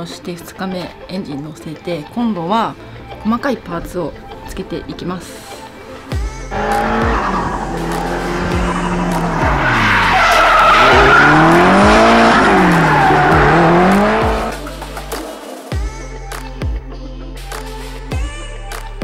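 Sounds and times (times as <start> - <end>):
car engine revving: 6.5 - 15.4
tyre squeal: 6.6 - 14.5.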